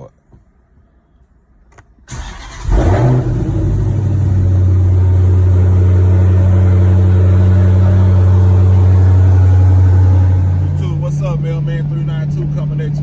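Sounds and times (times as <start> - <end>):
car starter cranking: 2.1 - 5.8
car engine idling: 2.1 - 13.0.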